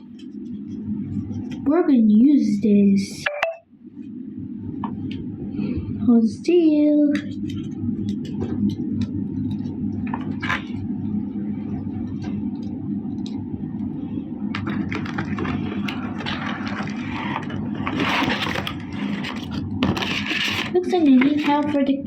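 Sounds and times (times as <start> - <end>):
steady low hum: 0.0 - 22.0
plastic packaging crinkling: 14.6 - 21.7.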